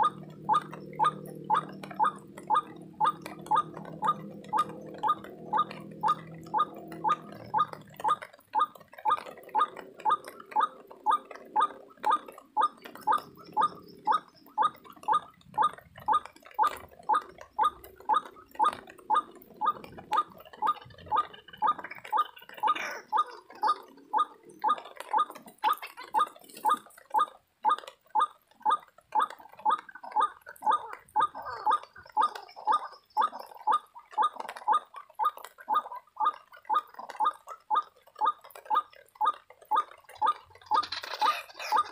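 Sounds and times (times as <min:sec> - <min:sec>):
waterhen hoarse calls: 0:19.7 - 0:27.2, 0:39.8 - 0:41.9.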